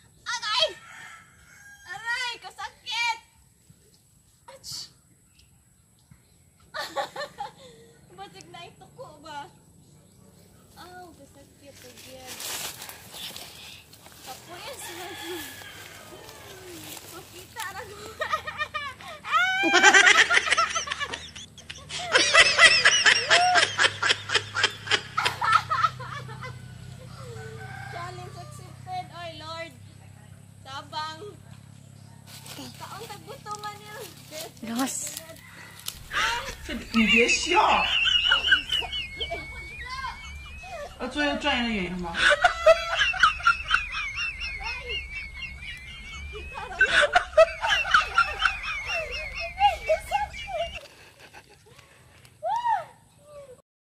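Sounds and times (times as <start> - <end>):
person laughing hard: 18.0 - 26.6, 36.1 - 41.1, 42.0 - 51.8
high-pitched chatter: 32.5 - 42.9, 44.1 - 50.9.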